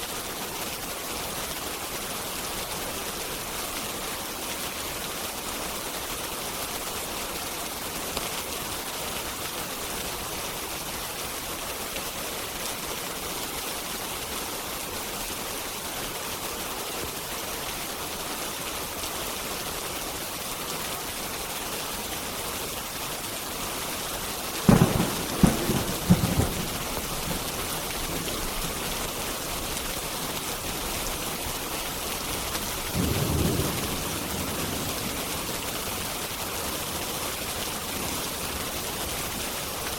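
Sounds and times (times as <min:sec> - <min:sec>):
steady rain: 0:00.0 - 0:39.9
thunder cracks and rumble: 0:24.7 - 0:27.4.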